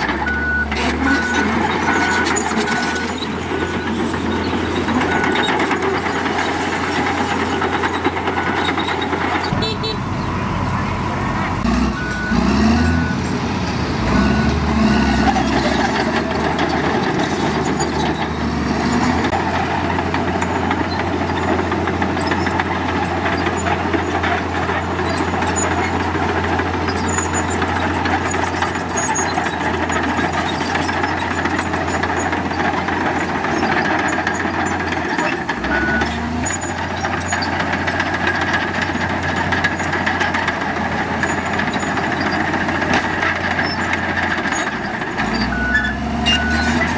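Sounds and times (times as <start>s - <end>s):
diesel machinery engine hum: 0.0s - 46.9s
reversing alarm beeps: 0.2s - 5.6s, 11.9s - 13.3s, 35.7s - 36.2s, 45.5s - 46.9s.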